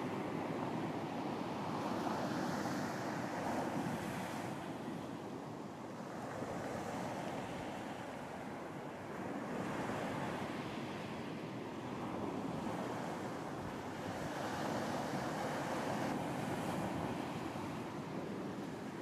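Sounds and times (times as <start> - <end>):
ocean surf breaking on beach: 0.0 - 19.0.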